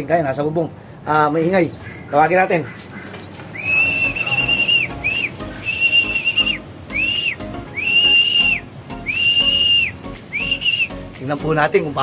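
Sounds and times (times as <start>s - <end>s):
hand whistle blasts: 3.6s - 11.2s.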